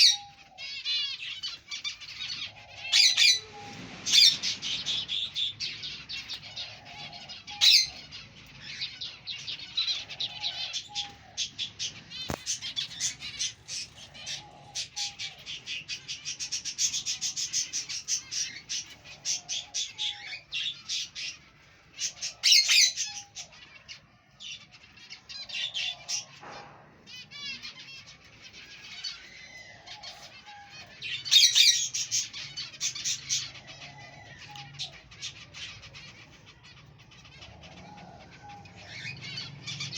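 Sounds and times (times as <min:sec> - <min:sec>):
finches chirping: 0:00.0 - 0:26.3.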